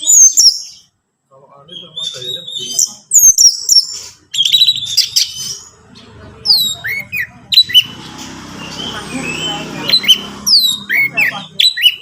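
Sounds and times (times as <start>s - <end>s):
bird whistled chirps: 8.7s - 12.0s.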